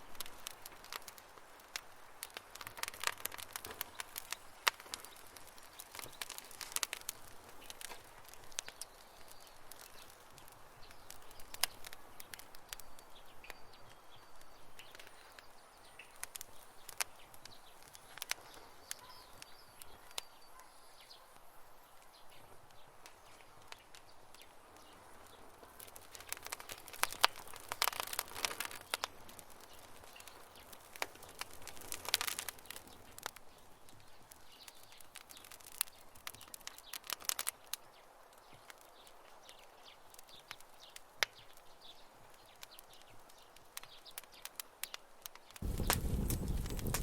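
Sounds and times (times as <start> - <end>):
campfire crackling and popping: 0.0 - 20.8, 21.4 - 47.0
faint bird chirps: 17.2 - 22.5.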